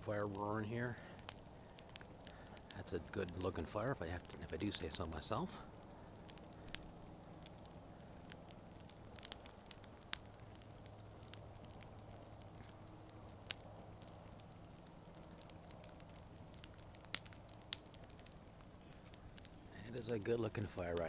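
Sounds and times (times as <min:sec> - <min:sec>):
campfire crackling: 0:00.0 - 0:21.0
fire popping: 0:00.0 - 0:21.0.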